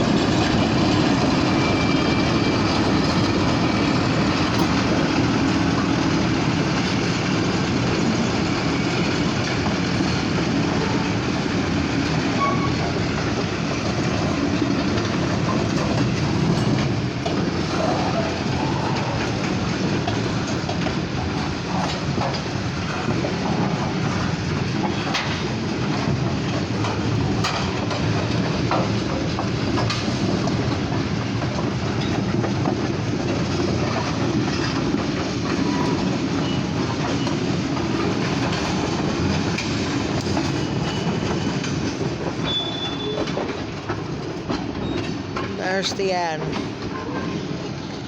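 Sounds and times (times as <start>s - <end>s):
freight train wheels rumbling: 0.0s - 48.0s
wheels clicking over rail joints: 0.2s - 45.7s
short high wheel squeal: 12.4s - 12.8s, 42.4s - 43.3s.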